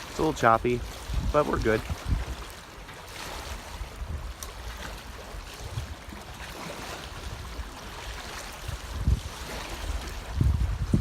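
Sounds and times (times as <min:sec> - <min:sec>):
lake water lapping against boat: 0:00.0 - 0:11.0
wind rumble on microphone: 0:00.0 - 0:11.0.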